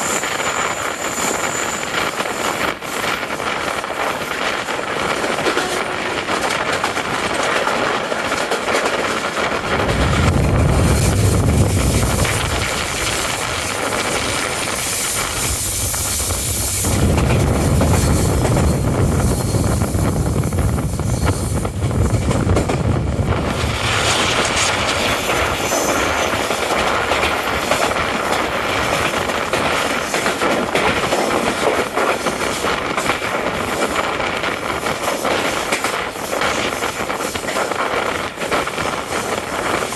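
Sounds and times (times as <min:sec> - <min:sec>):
train coaches rumbling and rattling: 0:00.0 - 0:39.9
deep rumble: 0:09.7 - 0:25.6.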